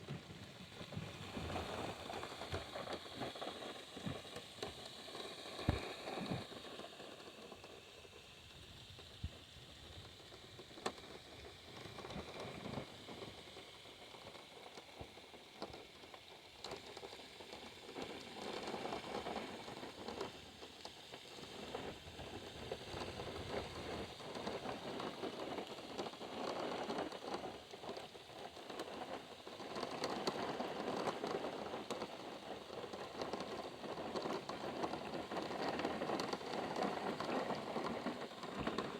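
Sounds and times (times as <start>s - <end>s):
rain pattering on car roof: 14.0s - 38.9s.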